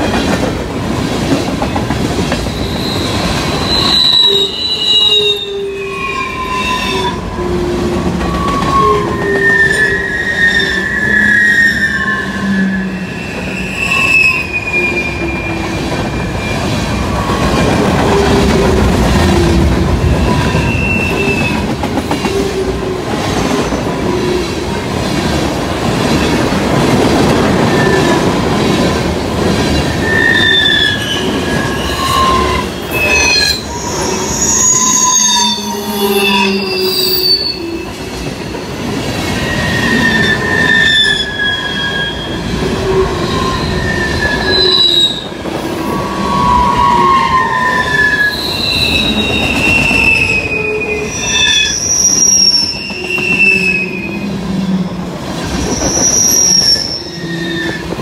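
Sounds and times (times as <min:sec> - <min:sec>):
train wheels rumbling on rails: 0:00.0 - 0:58.0
high-pitched wheel squeals: 0:02.5 - 0:18.5, 0:20.1 - 0:22.2, 0:29.8 - 0:58.0.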